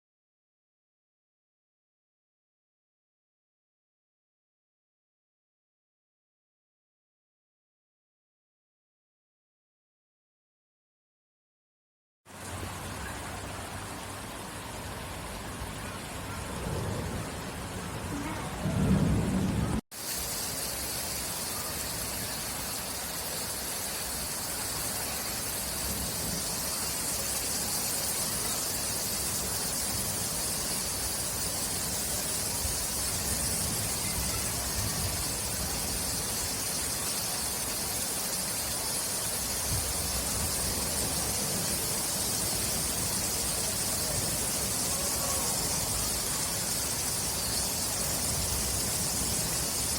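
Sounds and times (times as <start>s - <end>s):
steady rain falling: 12.3s - 49.9s
thunder rumble: 16.4s - 19.8s.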